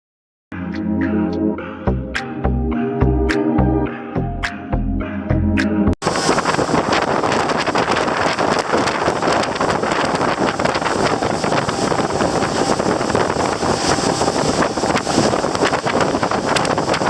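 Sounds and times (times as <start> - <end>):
boat running noise: 6.0 - 17.0
wind buffeting microphone: 6.0 - 17.0.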